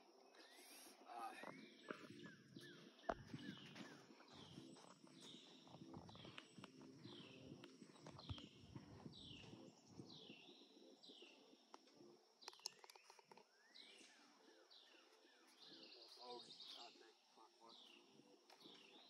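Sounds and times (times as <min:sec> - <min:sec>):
faint bird chirping: 0:00.0 - 0:19.0
faint clicks: 0:11.7 - 0:13.5.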